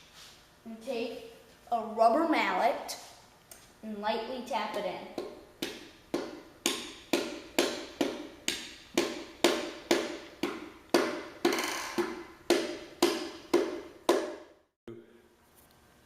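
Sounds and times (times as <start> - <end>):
rubber mallet tapping piston: 5.2 - 14.4.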